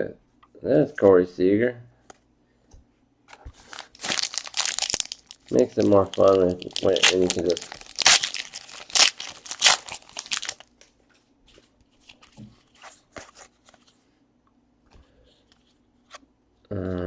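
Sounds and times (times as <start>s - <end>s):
wrapper crinkling and tearing: 3.6s - 10.8s.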